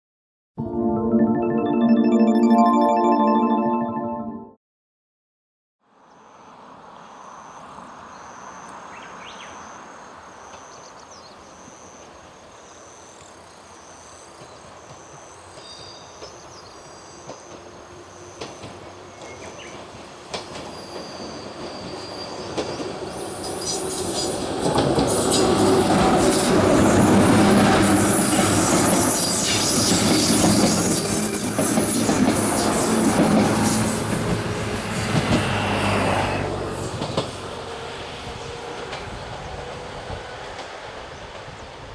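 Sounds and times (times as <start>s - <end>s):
wheel-on-rail noise: 14.3s - 41.9s
electric train approaching: 17.3s - 41.9s.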